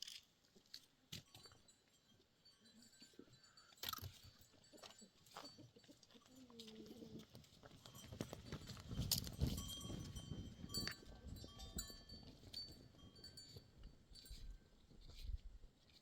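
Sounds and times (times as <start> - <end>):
livestock bells clinking: 1.1 - 15.3
hooves clattering: 3.4 - 16.0.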